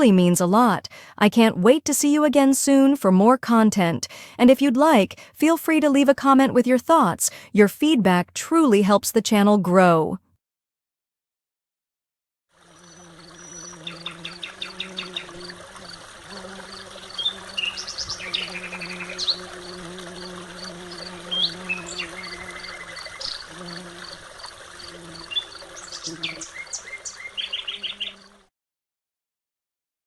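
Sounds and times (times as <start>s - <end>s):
insect pulsing: 12.6s - 28.5s
small birds chirping: 12.8s - 28.4s.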